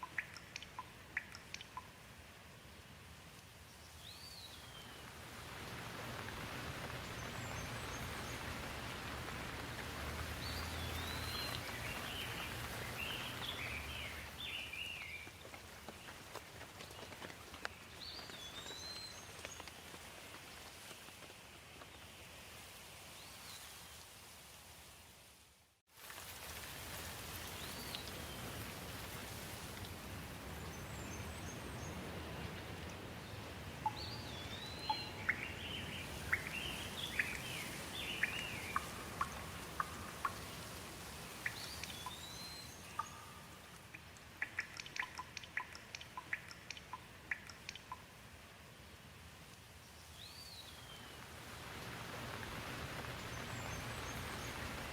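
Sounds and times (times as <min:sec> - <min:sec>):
steady rain: 0:00.0 - 0:54.9
birds singing: 0:06.8 - 0:15.4, 0:33.4 - 0:40.5, 0:41.4 - 0:43.4
sharp ticks: 0:43.0 - 0:48.1.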